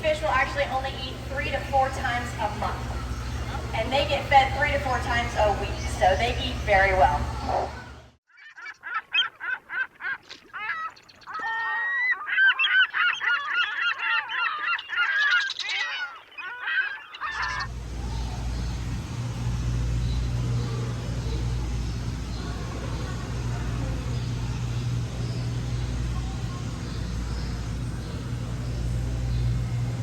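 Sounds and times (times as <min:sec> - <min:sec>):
birds honking: 0:00.0 - 0:08.2, 0:12.1 - 0:30.0
steady low hum: 0:00.0 - 0:08.2, 0:17.5 - 0:30.0.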